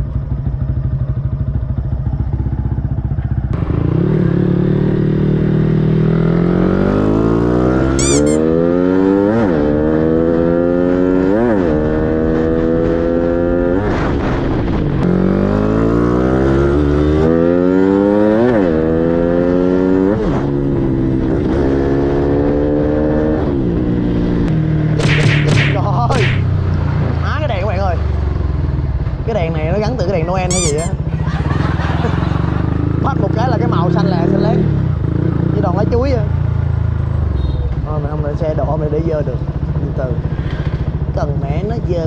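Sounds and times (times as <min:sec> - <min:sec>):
motorcycle accelerating through gears: 0:00.0 - 0:25.0, 0:26.4 - 0:37.8, 0:38.8 - 0:41.9.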